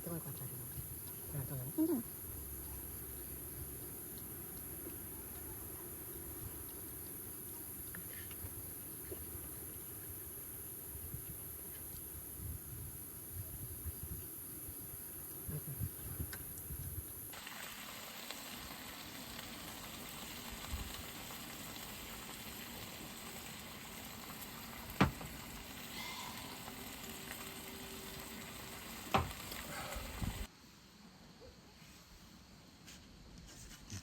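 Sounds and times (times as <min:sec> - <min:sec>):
food sizzling in a pan: 0:17.3 - 0:30.5.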